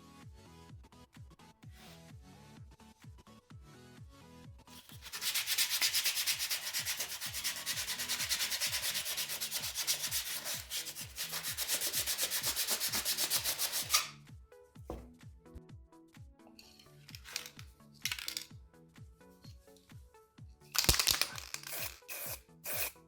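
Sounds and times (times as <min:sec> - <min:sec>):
fast abrasive rubbing: 0:04.8 - 0:14.2.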